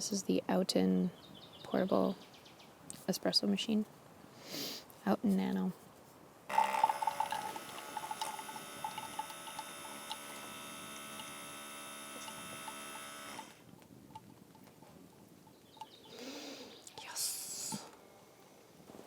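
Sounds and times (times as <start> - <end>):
espresso machine pump humming: 6.5 - 13.6.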